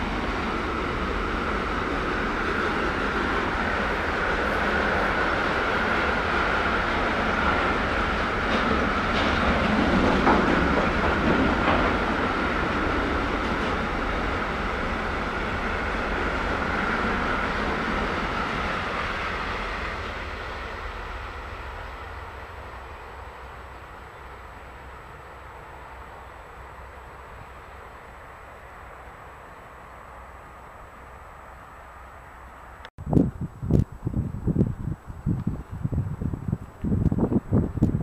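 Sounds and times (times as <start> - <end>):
wheel-on-rail rumble: 0.0 - 27.6
wheels clacking over rail joints: 0.2 - 20.4.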